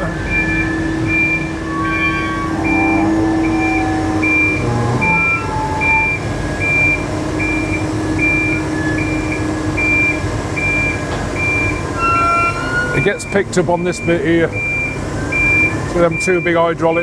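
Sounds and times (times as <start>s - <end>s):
diesel engine running: 0.0s - 17.0s
warning alarm beeping: 0.0s - 17.0s.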